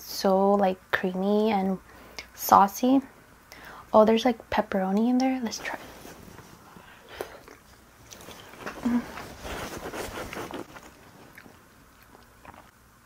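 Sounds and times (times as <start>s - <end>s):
wet chewing sounds: 7.1s - 12.8s.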